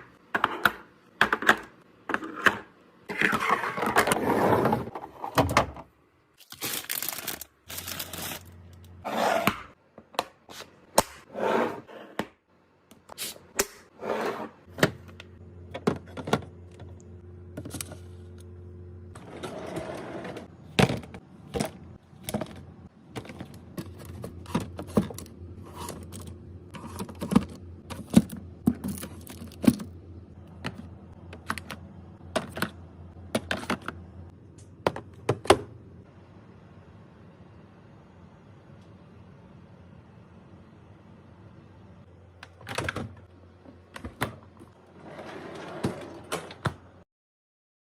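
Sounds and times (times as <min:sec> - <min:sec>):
low steady hum: 0:14.7 - 0:44.8.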